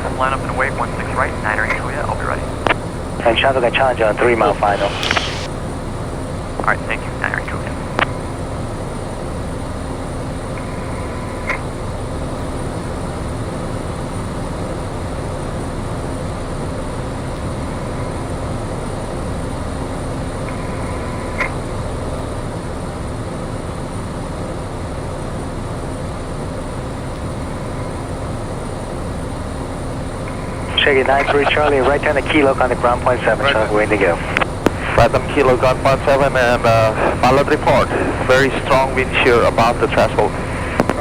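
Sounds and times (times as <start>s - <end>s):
propeller plane engine running: 0.0s - 15.2s, 26.6s - 41.0s
brief clicks: 4.7s - 5.6s.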